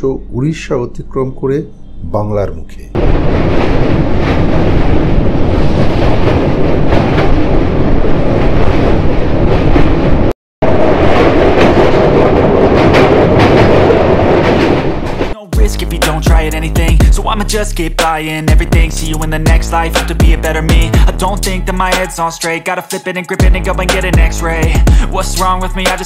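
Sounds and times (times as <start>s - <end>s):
train wheels rumbling on track: 10.9s - 15.4s.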